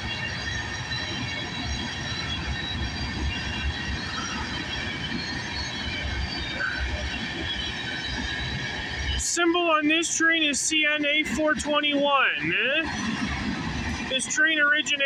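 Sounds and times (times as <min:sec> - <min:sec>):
train wheels rumbling on rail: 0:00.0 - 0:15.0
high-pitched wheel squeal: 0:00.2 - 0:09.1.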